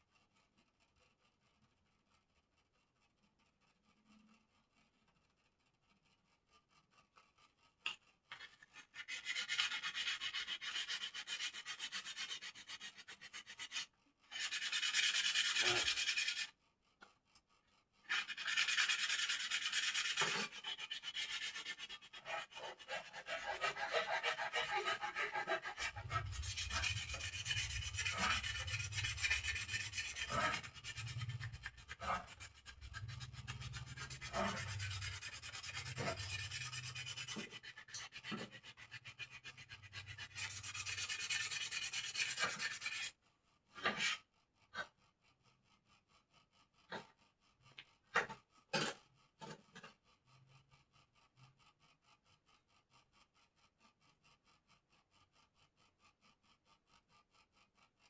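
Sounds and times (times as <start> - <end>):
sanding wood: 9.0 - 16.5, 18.1 - 43.1.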